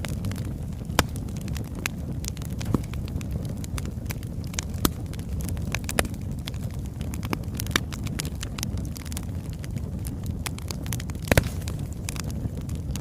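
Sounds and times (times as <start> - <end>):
fire crackling and popping: 0.0 - 13.0
flames rumbling: 0.0 - 13.0.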